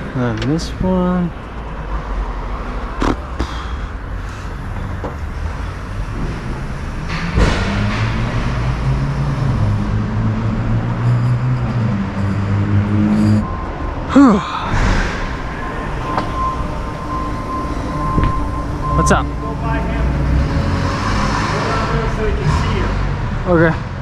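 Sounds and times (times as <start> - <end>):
motor humming: 15.1 - 20.8.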